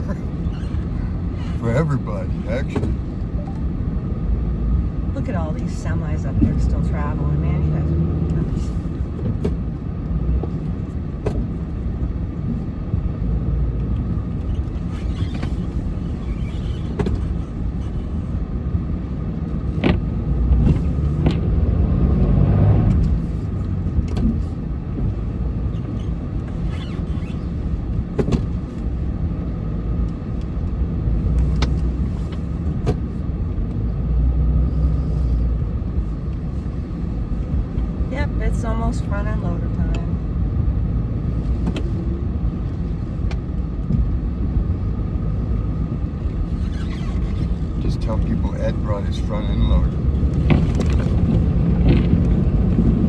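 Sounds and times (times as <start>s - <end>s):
truck engine rumbling: 0.0s - 53.0s
knocks and clunks: 2.6s - 3.7s, 14.4s - 17.9s, 19.6s - 21.6s, 28.1s - 28.6s, 49.8s - 53.0s.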